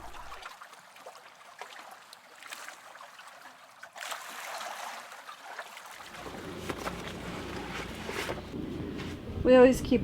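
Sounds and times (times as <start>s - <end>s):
water lapping around boat: 0.0s - 9.6s.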